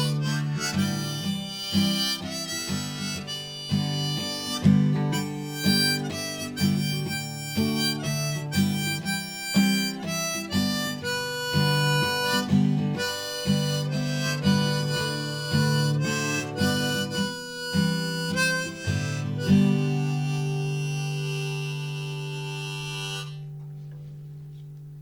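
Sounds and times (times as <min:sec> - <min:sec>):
harmonica melody: 0:00.0 - 0:23.9
acoustic guitar strumming: 0:00.0 - 0:24.8.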